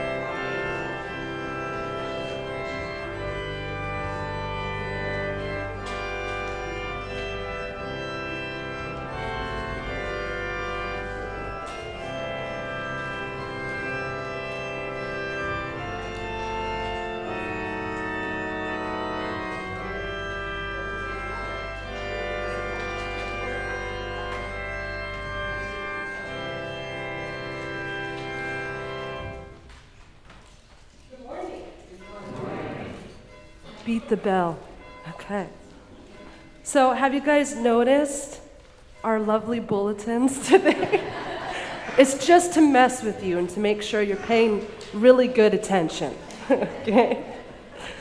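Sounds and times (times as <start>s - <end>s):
organ playing sustained chords: 0.0s - 30.1s, 31.9s - 48.0s.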